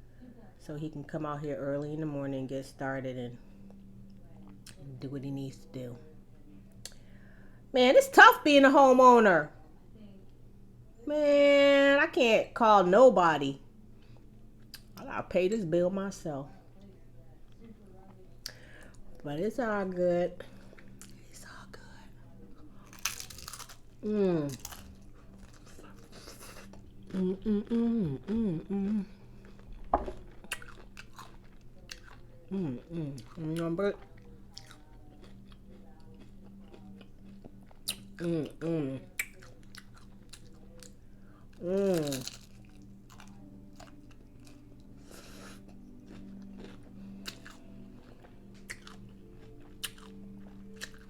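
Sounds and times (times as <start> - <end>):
faint background music: 0.0 - 51.0
crisp crunch: 22.8 - 32.2, 41.6 - 51.0
woman humming: 24.0 - 24.7, 26.1 - 29.4, 32.5 - 33.7, 38.2 - 39.1, 41.6 - 42.2.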